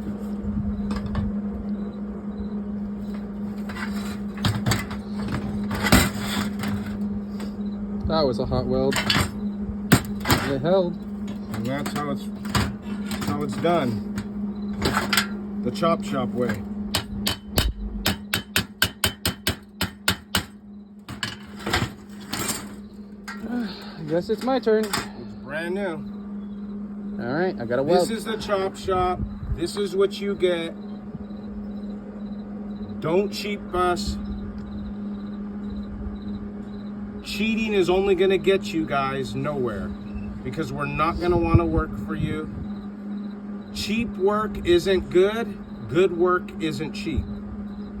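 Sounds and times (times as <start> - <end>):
steady low hum: 0.0 - 48.0
scraping or rustling: 3.1 - 7.6.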